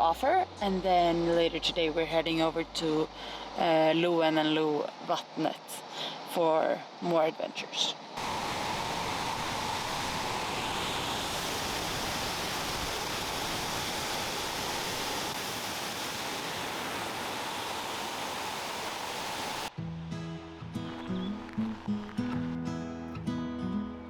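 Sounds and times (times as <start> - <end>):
waterfall rushing: 8.2 - 19.7.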